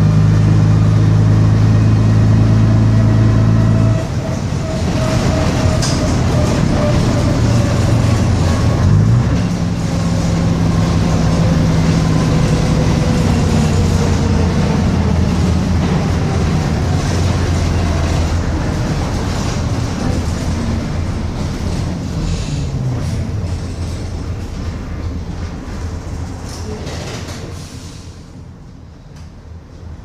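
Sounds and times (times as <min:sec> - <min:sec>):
bus engine whining: 0:00.0 - 0:30.0.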